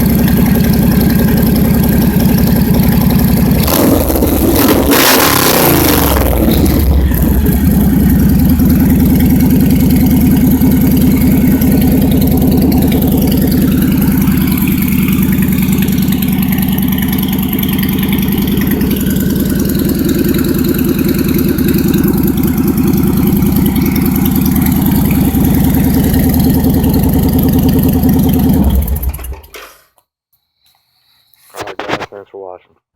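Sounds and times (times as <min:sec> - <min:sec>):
motorcycle engine idling: 0:00.0 - 0:04.9, 0:05.7 - 0:29.5.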